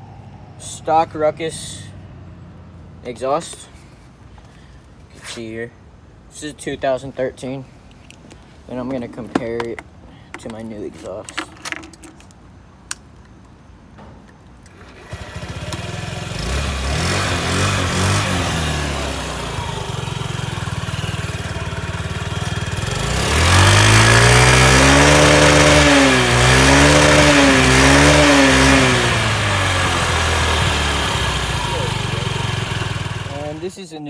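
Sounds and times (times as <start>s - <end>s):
scooter engine idling and revving: 14.7s - 33.7s.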